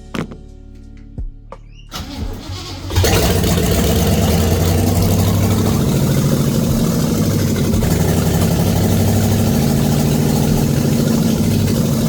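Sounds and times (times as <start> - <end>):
car engine running: 2.9 - 12.0.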